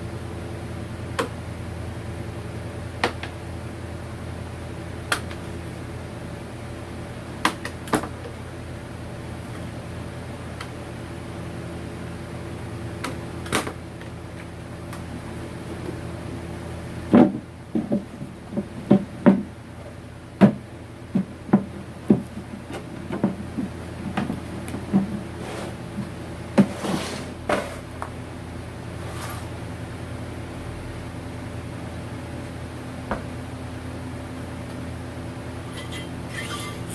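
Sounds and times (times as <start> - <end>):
steady hum: 0.0 - 36.9
hard objects knocking and clicking: 17.1 - 19.5, 20.4 - 25.3.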